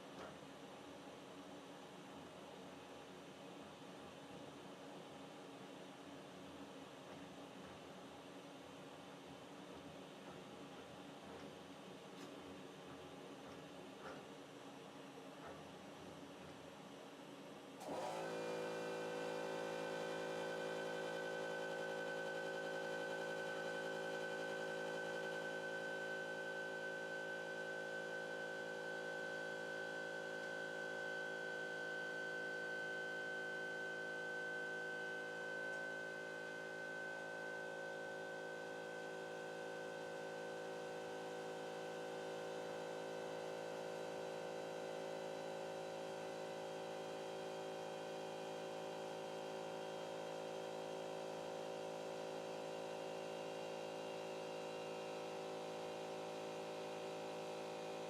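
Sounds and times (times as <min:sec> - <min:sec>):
machine motors whining and humming: 0:17.8 - 0:41.5.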